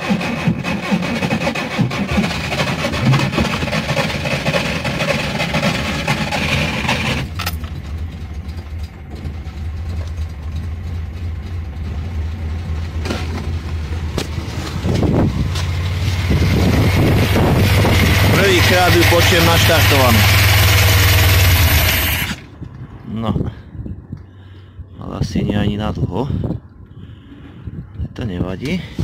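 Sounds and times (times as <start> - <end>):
engine cranking by starter: 0.0 - 22.6
engine idling: 0.0 - 22.6.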